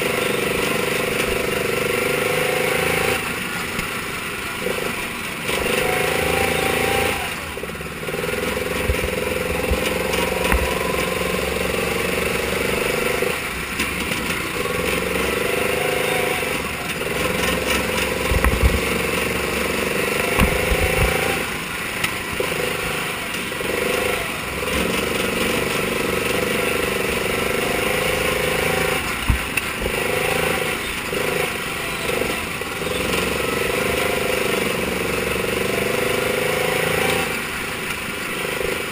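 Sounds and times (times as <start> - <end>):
racing car engines: 0.0 - 38.9.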